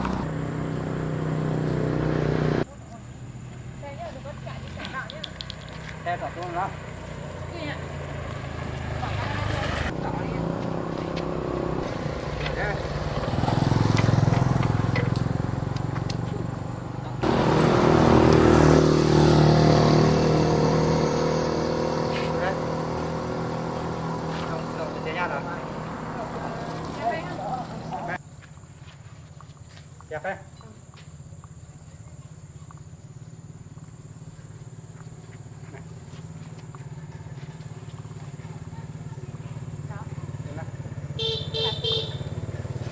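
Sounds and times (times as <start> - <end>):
tractor engine running: 0.0 - 2.7, 8.1 - 28.2
old tractor engine running: 17.1 - 20.4.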